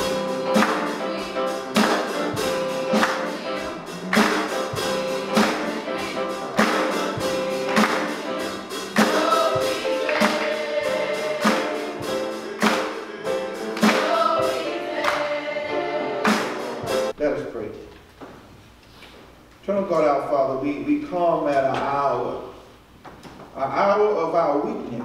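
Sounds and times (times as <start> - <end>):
gospel choir singing: 0.0 - 17.2
held keyboard notes: 0.0 - 17.2
steady percussive beat: 0.0 - 17.2.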